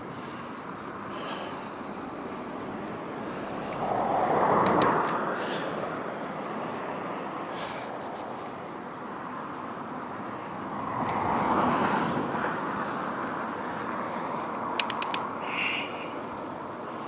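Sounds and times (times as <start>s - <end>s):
wind and road noise from bicycle: 0.0s - 17.0s
sharp clicks: 4.6s - 5.2s, 14.8s - 15.3s.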